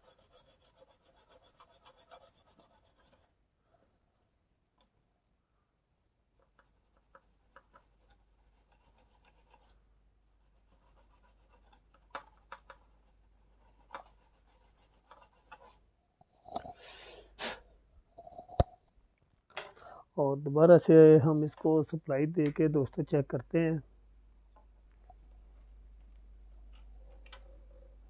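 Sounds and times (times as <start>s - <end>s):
brief hiss: 16.7s - 17.7s.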